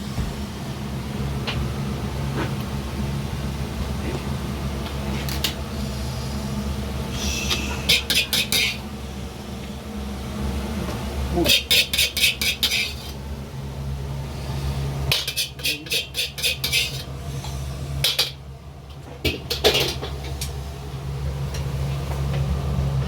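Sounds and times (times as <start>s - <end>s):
steady low hum: 0.0s - 23.0s
utensils clinking on cookware: 7.9s - 8.8s, 11.5s - 13.2s, 15.1s - 17.1s.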